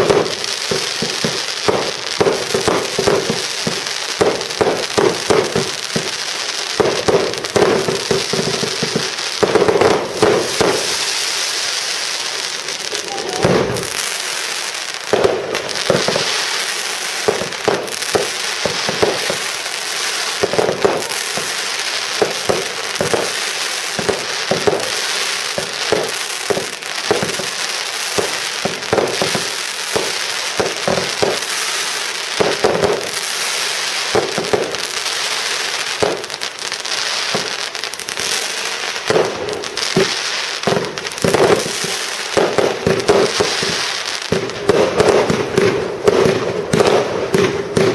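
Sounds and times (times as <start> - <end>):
sharp firework bangs: 0.0 - 36.5, 37.2 - 47.9
fireworks bursting and crackling: 0.0 - 47.9.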